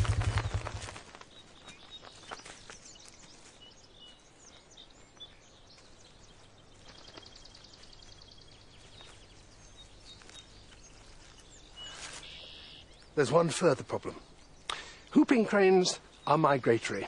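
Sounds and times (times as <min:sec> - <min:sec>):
bird chirps and calls: 0:00.0 - 0:17.0
bird fast trill: 0:11.7 - 0:12.9.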